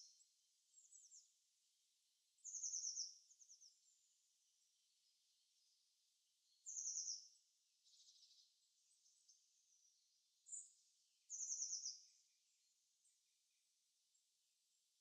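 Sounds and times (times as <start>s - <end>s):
small bird singing trills: 0.0s - 1.4s, 2.3s - 4.3s, 4.9s - 13.2s.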